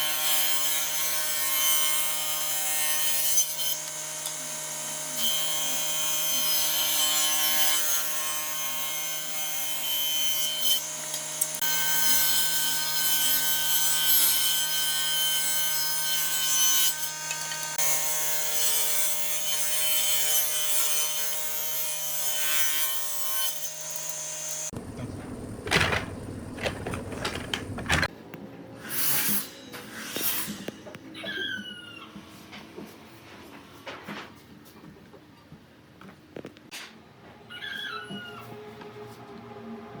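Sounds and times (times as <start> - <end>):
power tool grinding wood: 23.8 - 28.1
knocks: 24.8 - 28.1.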